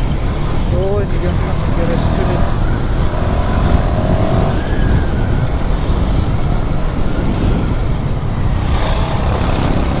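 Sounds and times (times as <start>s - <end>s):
motorcycle engine: 0.0s - 10.0s
wind rushing over microphone: 0.0s - 10.0s.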